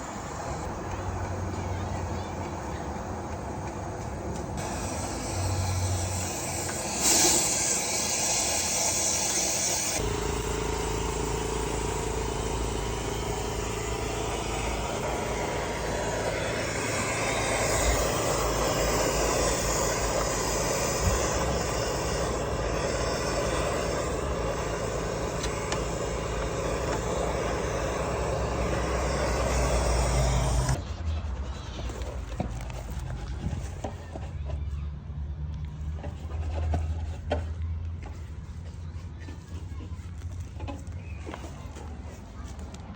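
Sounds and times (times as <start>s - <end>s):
motor humming: 4.6s - 30.8s
rushing air hiss: 4.6s - 30.8s.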